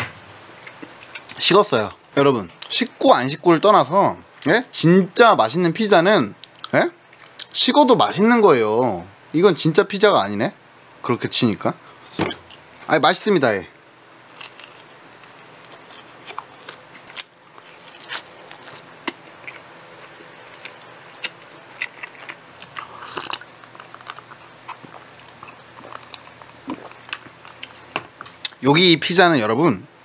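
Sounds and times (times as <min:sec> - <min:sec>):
biting and chewing pizza: 0:14.4 - 0:28.6.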